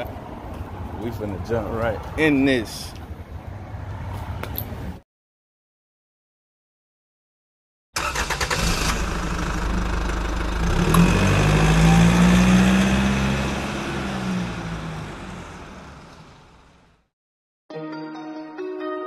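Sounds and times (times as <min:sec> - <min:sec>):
car engine revving: 0:08.0 - 0:16.1.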